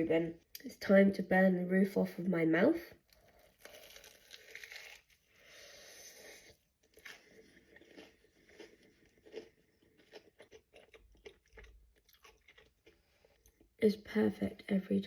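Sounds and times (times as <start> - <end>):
chewing crunches: 3.1 - 5.3, 6.4 - 13.7
crunching bite of toasted sandwich: 3.4 - 5.3.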